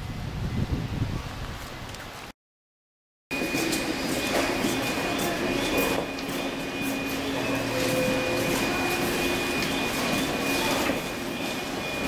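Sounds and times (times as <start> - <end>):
electric train mechanical hum: 3.3 - 12.0.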